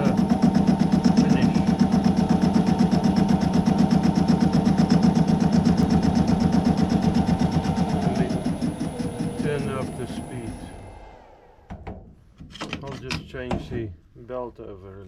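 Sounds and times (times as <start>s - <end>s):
lathe cutting metal: 0.0s - 11.6s.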